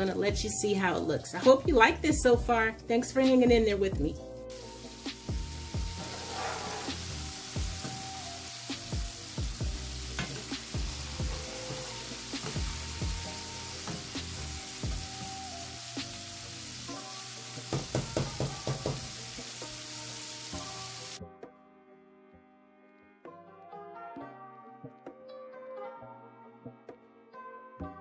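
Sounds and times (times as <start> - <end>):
soft background music: 0.0 - 28.0
food deep-frying in hot oil: 4.5 - 21.2.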